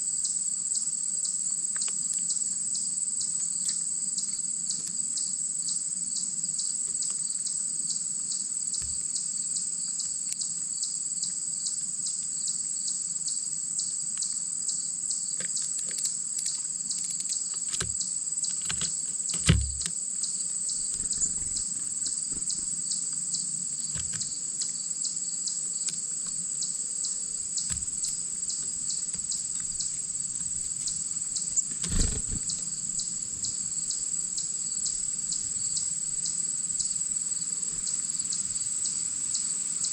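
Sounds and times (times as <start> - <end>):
insect chorus chirping: 0.0 - 39.9
short thumps: 18.7 - 19.9.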